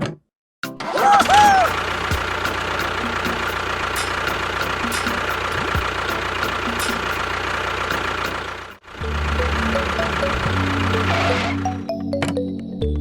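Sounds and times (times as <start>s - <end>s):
music: 0.6s - 3.6s, 4.3s - 7.3s, 9.0s - 13.0s
engine idling: 1.0s - 11.9s.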